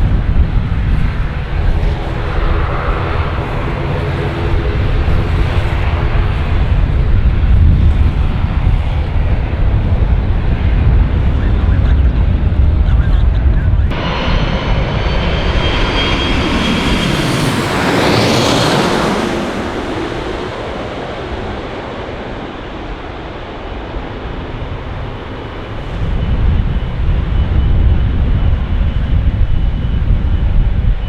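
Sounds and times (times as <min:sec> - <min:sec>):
low rumble: 0:00.0 - 0:23.5
jet airliner passing overhead: 0:00.0 - 0:31.0.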